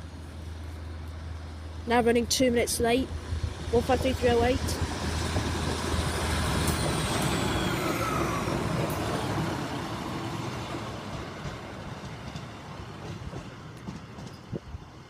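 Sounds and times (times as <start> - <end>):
diesel train passing: 0.0 - 15.0.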